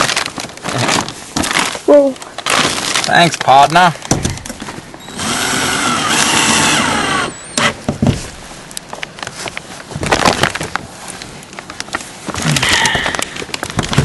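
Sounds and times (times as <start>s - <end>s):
power tool cutting: 5.1s - 7.8s
knocks and clatter of handling: 11.8s - 14.0s.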